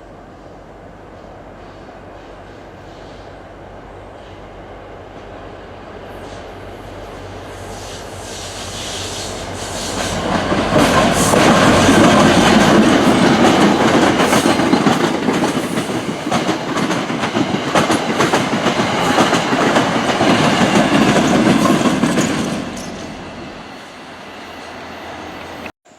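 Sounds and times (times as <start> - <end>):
passenger train passing: 0.0 - 25.7
wheels clicking over rail joints: 10.1 - 23.1.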